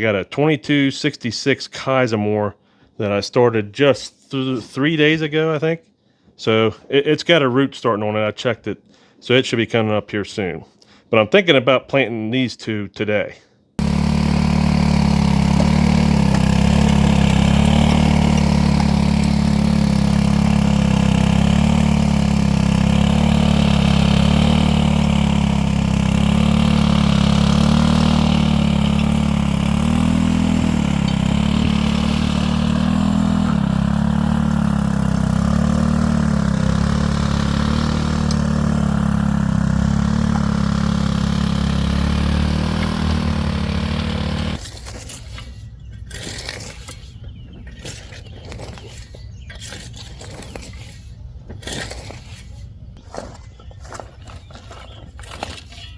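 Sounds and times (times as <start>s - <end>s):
engine running steadily: 13.8s - 44.6s.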